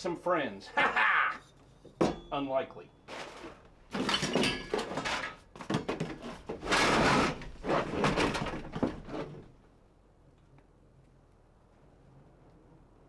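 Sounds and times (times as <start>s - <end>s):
items clattering and scraping: 3.0s - 9.6s
scraping rustle: 3.1s - 9.6s.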